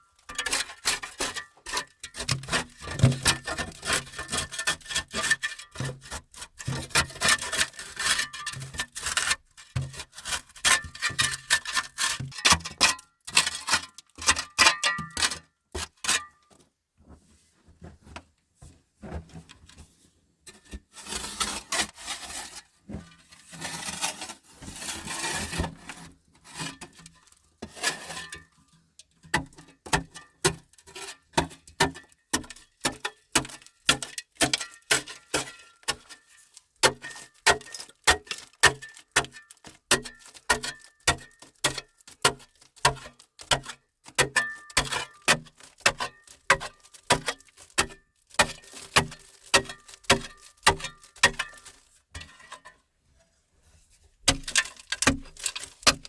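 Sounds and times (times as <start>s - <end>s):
rough scraping: 20.9s - 26.6s.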